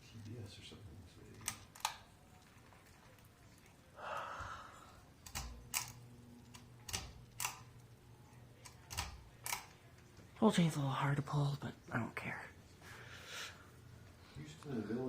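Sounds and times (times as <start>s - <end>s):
fan motor hum: 4.0s - 10.6s
pull-chain switch clicking: 5.2s - 7.7s.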